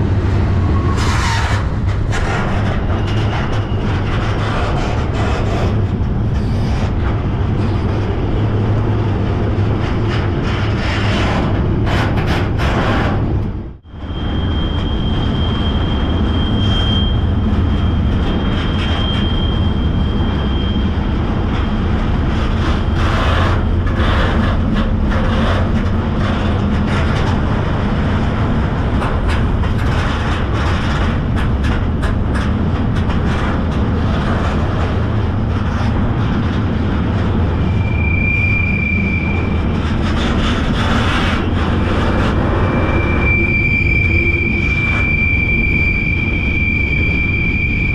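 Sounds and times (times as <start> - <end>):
train rumble and rattle: 0.0 - 47.9
high wheel squeal: 0.5 - 5.6, 13.9 - 26.4, 37.2 - 47.9.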